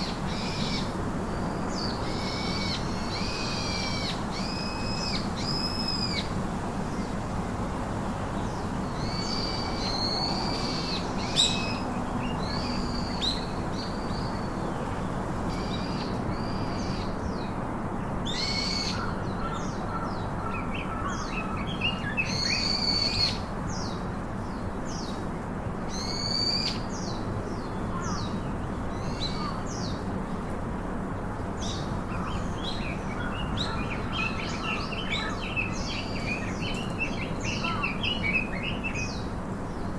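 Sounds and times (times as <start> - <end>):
steady background hiss: 0.0 - 39.9
birds whistling and chirping: 1.8 - 6.3, 9.0 - 14.5, 21.2 - 23.4, 25.9 - 27.7, 31.6 - 39.3.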